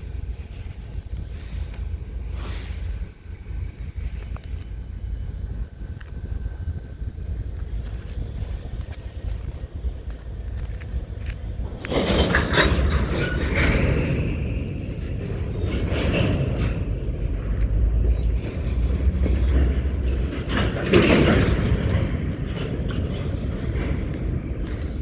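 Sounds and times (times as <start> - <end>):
high squeal: 0.0 - 10.4
railcars rumbling: 0.0 - 25.0
metallic clanks: 10.6 - 25.0.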